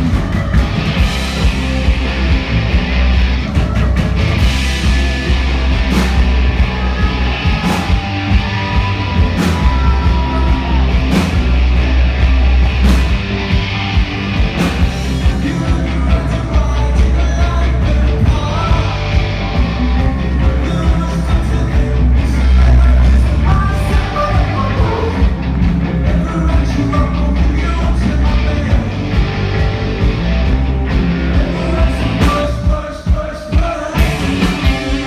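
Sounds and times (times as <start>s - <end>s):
drums: 0.0s - 35.0s
live rock band playing: 0.0s - 35.0s
person singing: 5.3s - 11.6s, 15.0s - 29.4s, 31.2s - 35.0s.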